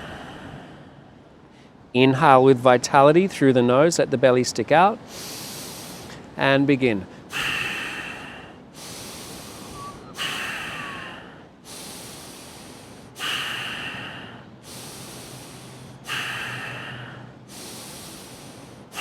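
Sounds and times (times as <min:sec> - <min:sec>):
forceful breathing through nose: 0:05.0 - 0:06.2, 0:07.2 - 0:19.0.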